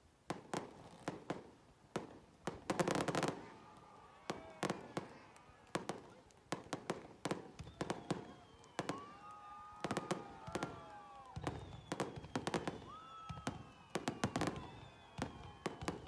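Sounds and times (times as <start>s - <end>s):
firework bangs and crackles: 0.2s - 16.0s
firework whistles falling: 7.2s - 16.0s.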